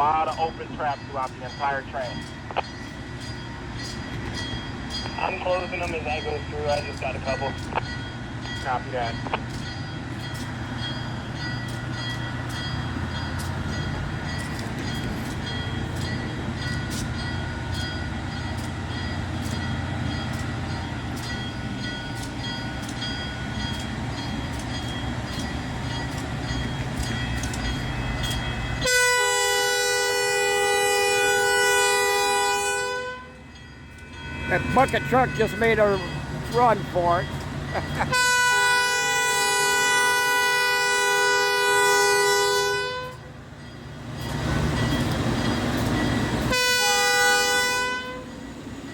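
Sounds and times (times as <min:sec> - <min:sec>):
train wheels clicking: 0:00.0 - 0:32.6, 0:42.5 - 0:48.9
train rumbling past: 0:00.0 - 0:48.9
locomotive air horn: 0:28.8 - 0:33.4, 0:38.0 - 0:43.3, 0:46.5 - 0:48.4.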